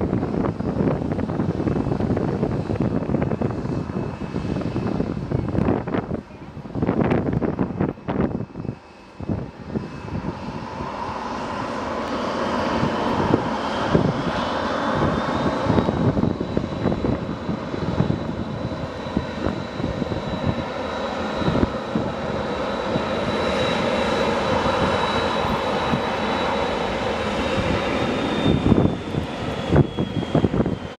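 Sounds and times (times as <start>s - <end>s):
jet engine roar: 0.0s - 31.0s
wind buffeting microphone: 0.0s - 31.0s
high fan whine: 12.6s - 30.8s.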